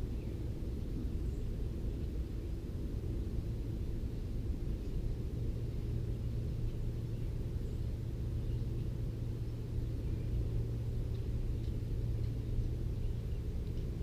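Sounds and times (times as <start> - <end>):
constant low hum: 0.0 - 14.0
small birds chirping: 4.7 - 14.0.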